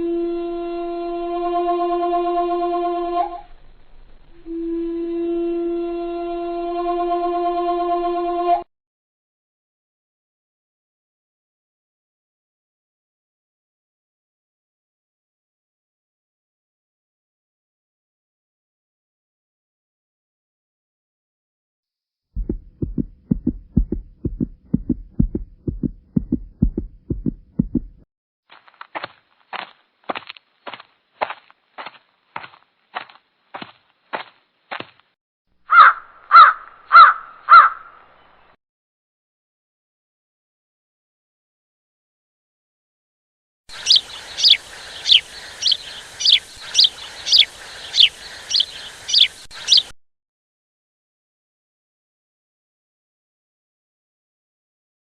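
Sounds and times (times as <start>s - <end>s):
short low thumps: 22.4s - 28.0s
bird high down-slurred call: 35.7s - 38.0s, 43.7s - 49.9s
faint background hiss: 43.8s - 49.9s.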